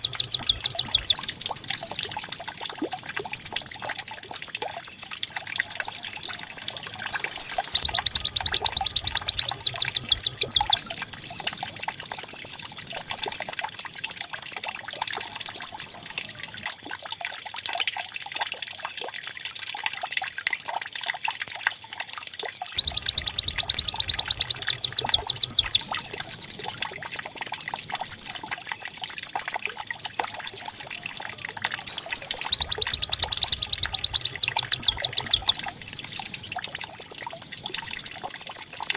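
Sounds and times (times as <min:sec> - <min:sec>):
bird trilling and warbling: 0:00.0 - 0:13.7, 0:22.8 - 0:38.9.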